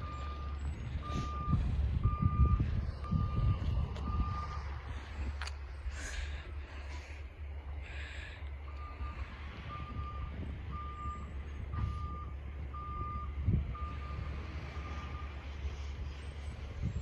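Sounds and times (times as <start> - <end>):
truck backup alarm beeping: 0.0 - 4.8, 8.6 - 17.0
truck engine rumbling: 0.0 - 17.0.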